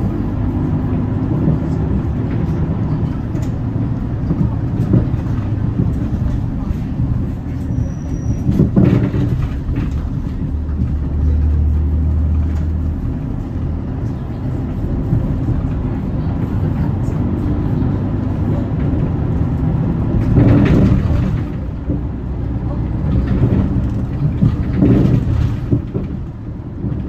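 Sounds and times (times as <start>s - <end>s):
diesel bus engine drone: 0.0s - 27.0s
road noise: 0.0s - 27.0s.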